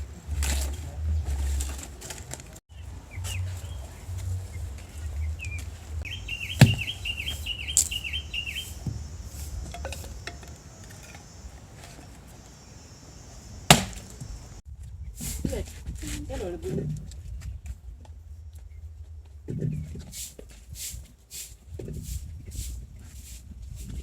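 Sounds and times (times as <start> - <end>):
low rumble: 0.0 - 6.3
small bird chirping: 2.7 - 14.6
sharp knocks: 6.5 - 7.0, 13.7 - 14.3.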